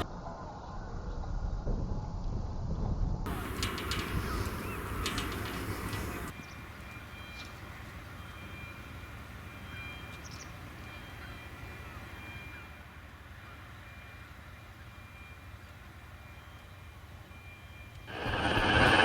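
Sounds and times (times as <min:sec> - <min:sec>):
low rumble: 0:18.1 - 0:19.0.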